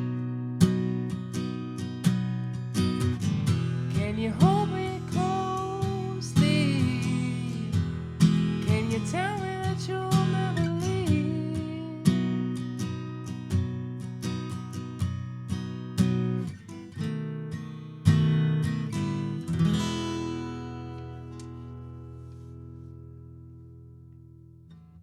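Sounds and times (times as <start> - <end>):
acoustic guitar strumming: 0.0 - 24.0
person singing: 4.0 - 7.8, 8.7 - 12.2.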